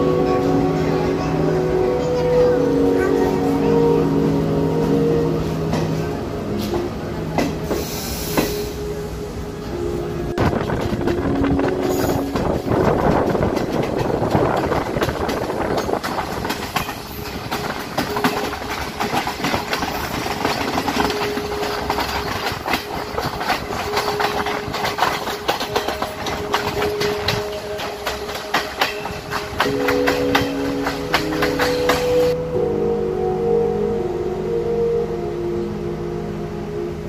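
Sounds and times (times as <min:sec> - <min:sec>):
train wheels rumbling on rails: 0:00.0 - 0:32.4
wheels clicking and clacking: 0:10.4 - 0:32.4.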